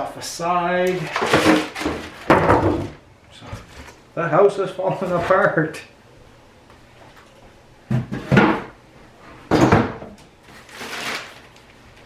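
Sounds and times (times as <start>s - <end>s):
styrofoam scraping and rubbing: 10.5s - 11.5s.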